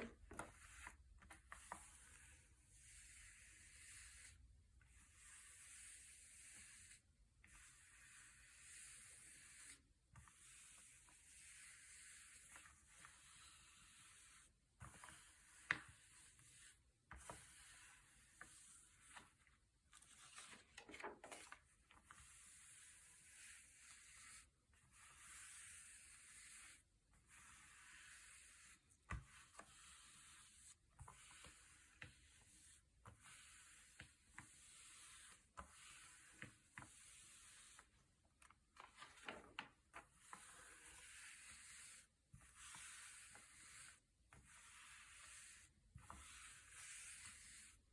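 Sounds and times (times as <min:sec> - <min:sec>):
paper pages rustling: 0:19.9 - 0:21.7, 0:38.4 - 0:39.8.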